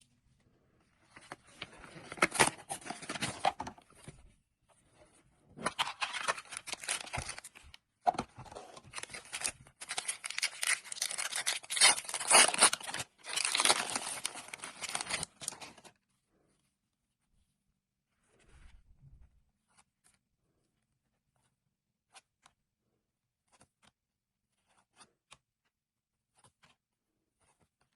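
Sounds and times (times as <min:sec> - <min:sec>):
plastic packaging crinkling: 0:05.7 - 0:07.7, 0:08.7 - 0:15.9.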